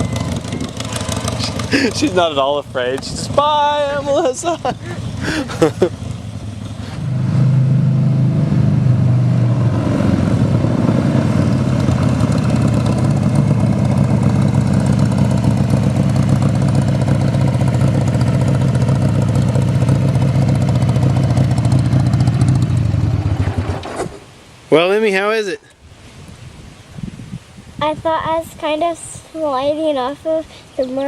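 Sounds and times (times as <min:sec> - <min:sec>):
motorcycle engine running: 0:00.0 - 0:24.2.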